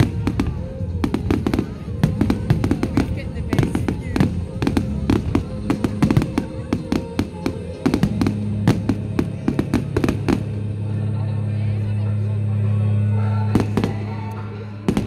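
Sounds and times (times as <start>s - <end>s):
fireworks bangs and cracks: 0.0s - 10.6s
music with held low note: 0.0s - 15.0s.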